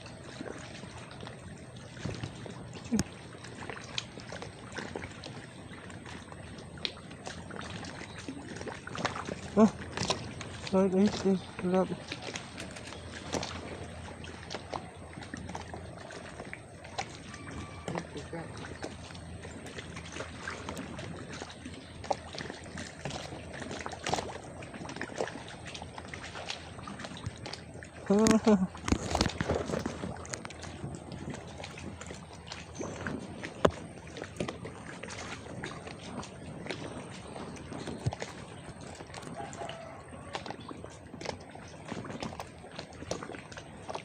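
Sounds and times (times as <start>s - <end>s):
water lapping and trickling: 0.0s - 44.0s
small clicks and ticks: 12.2s - 13.7s, 28.2s - 30.7s.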